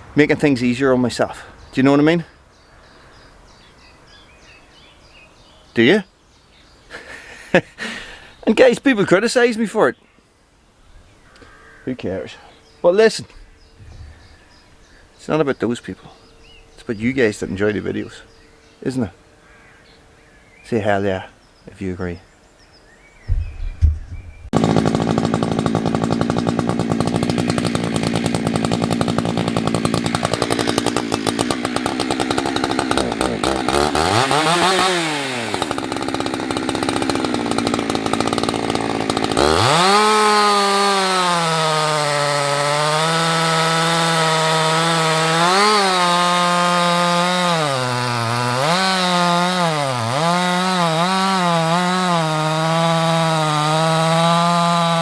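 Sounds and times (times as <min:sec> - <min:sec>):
chainsaw running: 0:06.9 - 0:08.3, 0:23.8 - 0:55.0.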